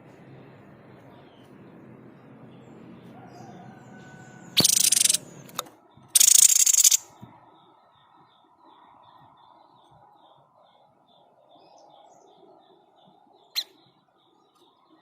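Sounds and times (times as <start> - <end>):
bird harsh rattling call: 4.5 - 5.3, 6.2 - 7.1
sharp click: 4.6 - 7.0.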